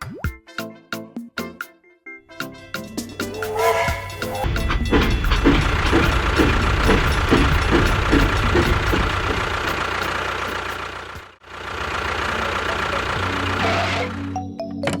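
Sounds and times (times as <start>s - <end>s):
engine chugging: 2.5s - 14.4s.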